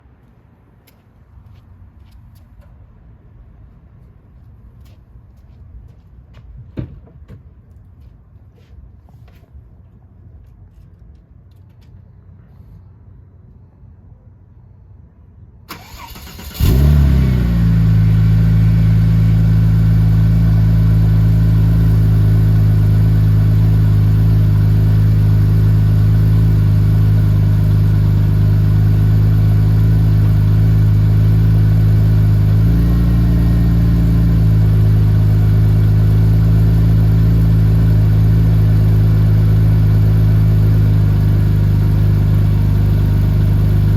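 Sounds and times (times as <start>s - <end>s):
car engine revving on start: 15.7s - 18.8s.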